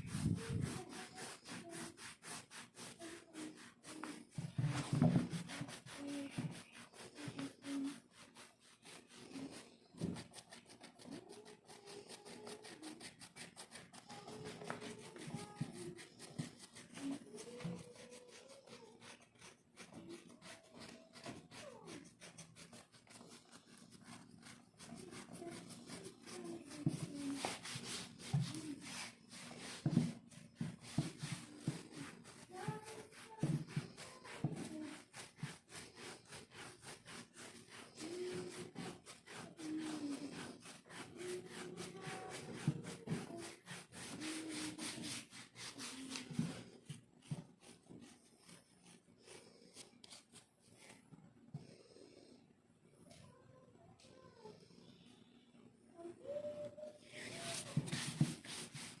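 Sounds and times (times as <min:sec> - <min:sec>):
scratching dry skin: 0:00.0 - 0:51.0, 0:57.1 - 0:59.0.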